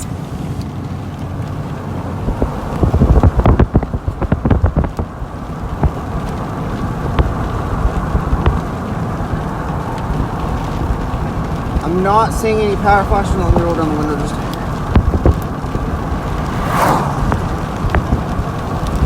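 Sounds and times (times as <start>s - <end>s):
rain and road noise in vehicle: 0.0s - 19.0s
scattered ticks: 2.3s - 16.6s.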